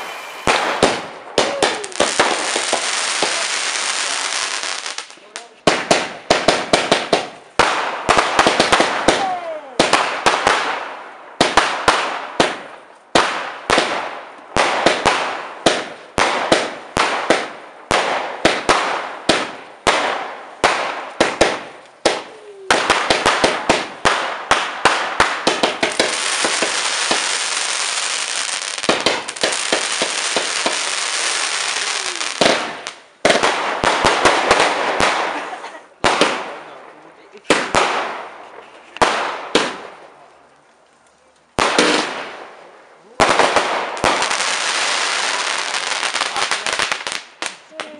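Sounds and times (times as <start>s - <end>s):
falling firework whistles: 0.0s - 2.4s
fireworks bangs and crackle: 0.0s - 40.3s, 41.4s - 47.9s.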